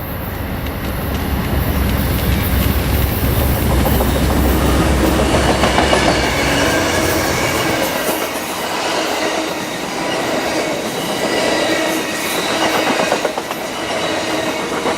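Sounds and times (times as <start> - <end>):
diesel locomotive rumble: 0.0 - 8.5
train cars clattering: 0.0 - 14.9
train wheels squealing: 0.0 - 14.9.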